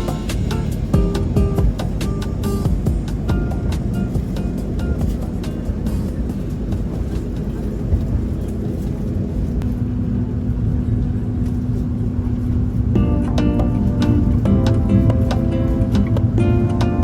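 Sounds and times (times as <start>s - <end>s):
music: 0.0s - 7.5s, 13.0s - 17.0s
train rumbling on tracks: 0.0s - 17.0s.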